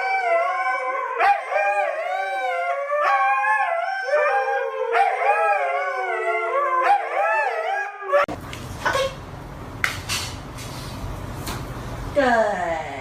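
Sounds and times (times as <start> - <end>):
dogs howling: 0.0 - 8.3.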